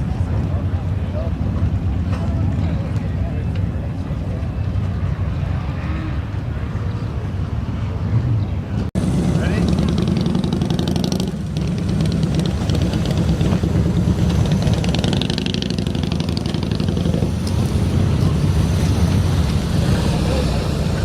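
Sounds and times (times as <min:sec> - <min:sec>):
motorcycle engine running: 0:09.0 - 0:21.0.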